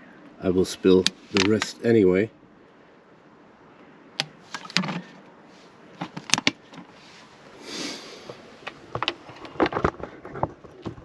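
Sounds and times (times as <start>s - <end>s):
clicks and light knocks of parts: 0.2s - 1.8s, 5.9s - 7.0s, 8.3s - 11.0s
soft hiss: 6.9s - 8.8s.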